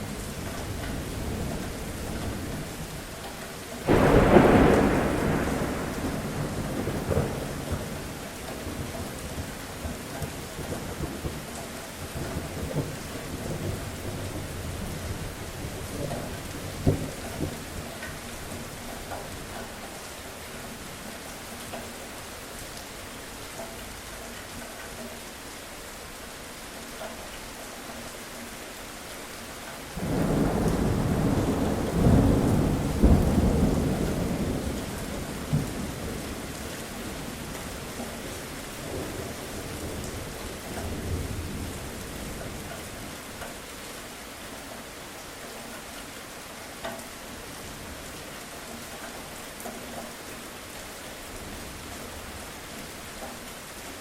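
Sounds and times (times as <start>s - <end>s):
steady rain falling: 0.0s - 54.0s
thunder rolling: 3.9s - 8.2s, 30.0s - 36.5s.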